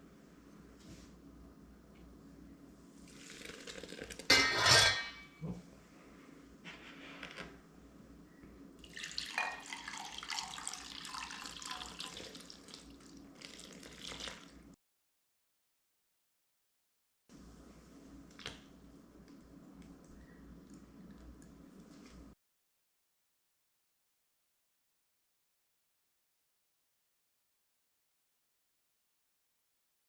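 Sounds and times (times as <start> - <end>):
gush of water: 3.1 - 4.3, 8.8 - 14.6
dishes and cutlery clinking: 4.3 - 5.6, 9.3 - 9.8
water running from tap: 8.8 - 14.6.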